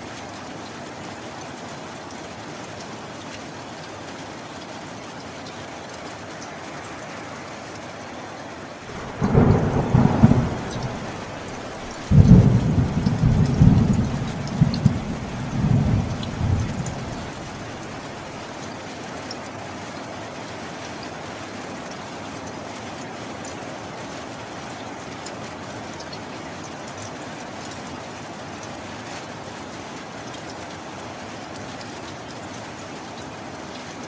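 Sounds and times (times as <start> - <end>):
steady rain: 0.0 - 34.0
thunder rumbling: 8.9 - 18.1.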